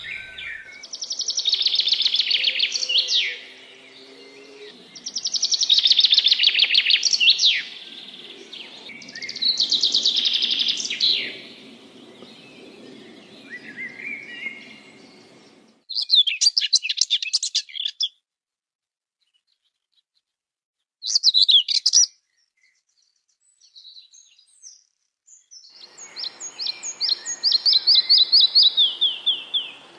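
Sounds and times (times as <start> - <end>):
rapid jumbled bird song: 0.0 - 18.1, 21.0 - 29.9
songbird singing: 0.0 - 18.1, 21.1 - 29.9.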